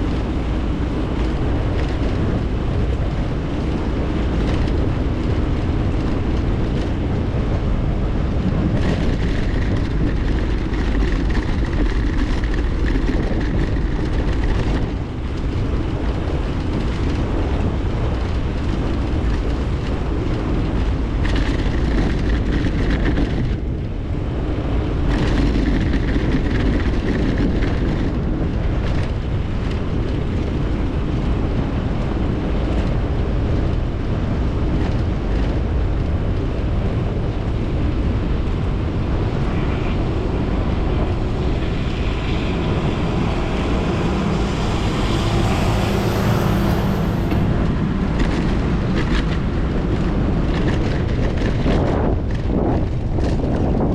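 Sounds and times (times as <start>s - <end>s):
bicycle rolling on road: 0.0s - 53.9s
wind rushing over microphone: 0.0s - 53.9s.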